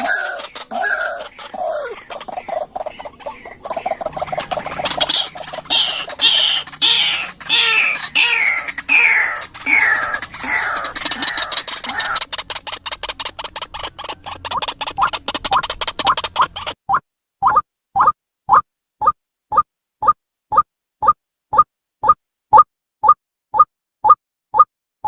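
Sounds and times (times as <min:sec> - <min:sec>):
harsh bird calls: 0:00.0 - 0:16.8.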